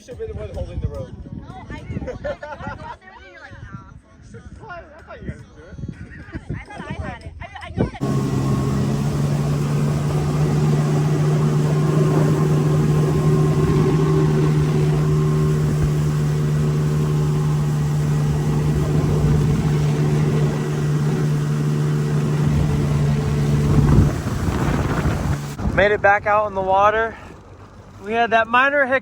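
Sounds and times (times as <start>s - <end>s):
jet ski engine running: 8.0s - 25.9s.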